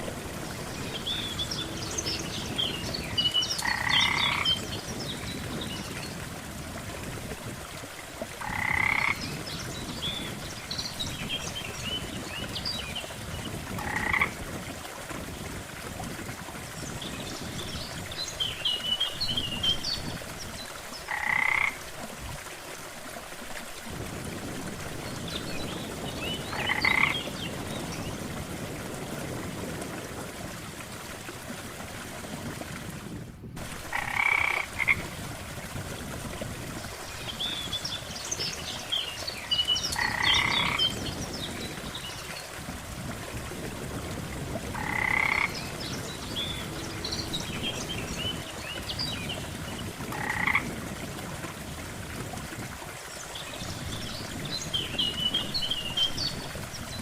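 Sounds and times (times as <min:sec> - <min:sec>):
frog croaking: 0:03.6 - 0:04.5, 0:08.4 - 0:09.2, 0:13.8 - 0:14.4, 0:21.1 - 0:21.8, 0:26.5 - 0:27.3, 0:33.9 - 0:35.0, 0:40.0 - 0:40.8, 0:44.8 - 0:45.6, 0:50.1 - 0:50.7.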